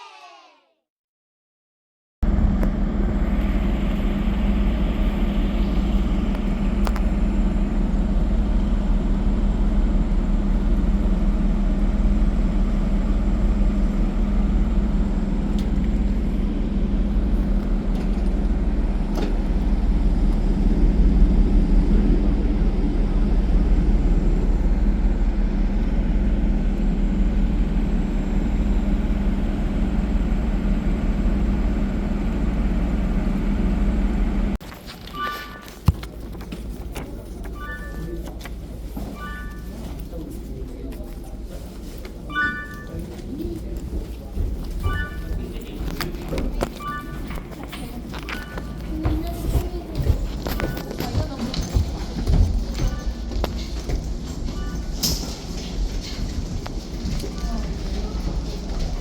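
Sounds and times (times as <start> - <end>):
vehicle engine running: 2.2 - 34.6.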